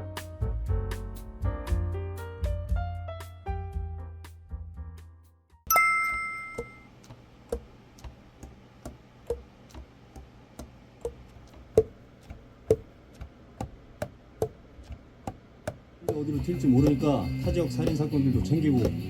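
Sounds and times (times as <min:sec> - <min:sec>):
bell-like ding: 0:05.7 - 0:06.9.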